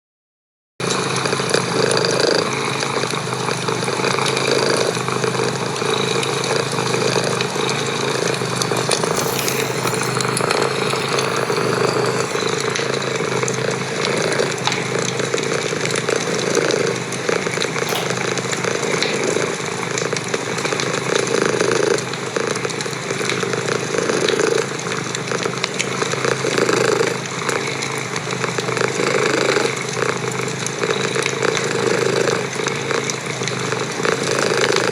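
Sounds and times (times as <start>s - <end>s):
cat purring: 8.4s - 19.6s.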